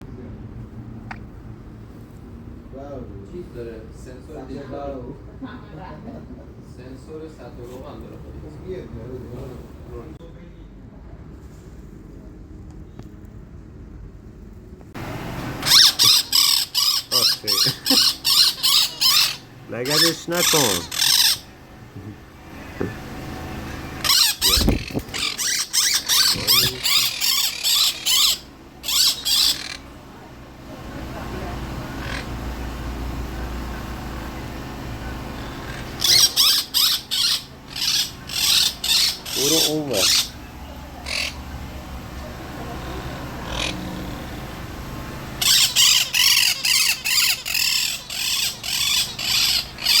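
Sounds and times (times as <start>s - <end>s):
parrot screeching: 15.6s - 21.6s, 24.0s - 29.9s, 31.8s - 32.4s, 35.4s - 41.5s, 43.2s - 44.1s, 45.4s - 50.0s.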